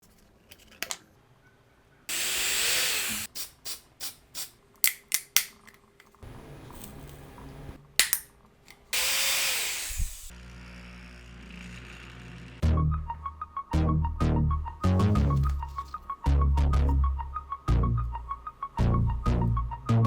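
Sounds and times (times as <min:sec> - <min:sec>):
small electric motor whining: 0:02.1 - 0:03.3, 0:09.0 - 0:12.6
sharp clicks: 0:08.0 - 0:09.2.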